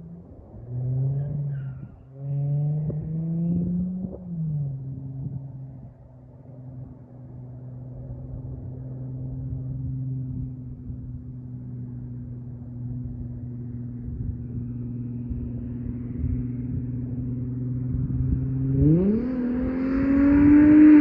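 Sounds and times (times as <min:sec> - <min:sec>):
car engine revving: 0:12.8 - 0:21.0.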